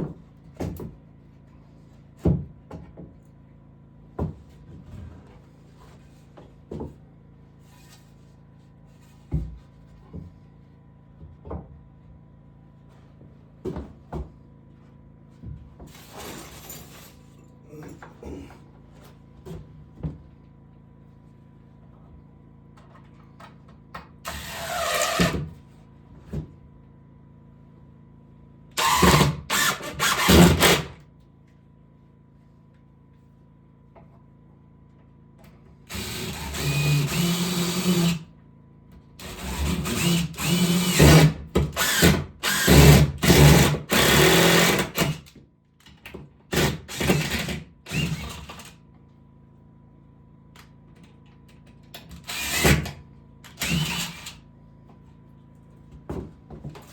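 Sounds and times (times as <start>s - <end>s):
power drill running: 24.2s - 25.4s, 28.8s - 31.0s, 35.9s - 38.3s, 39.2s - 45.3s, 46.5s - 48.7s, 52.2s - 54.4s.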